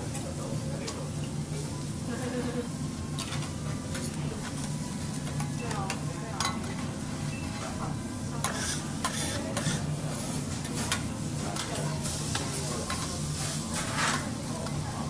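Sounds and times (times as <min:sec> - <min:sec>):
food sizzling on hot plate: 0:08.2 - 0:15.0
metal spatulas scraping griddle: 0:08.4 - 0:10.9, 0:12.0 - 0:14.3.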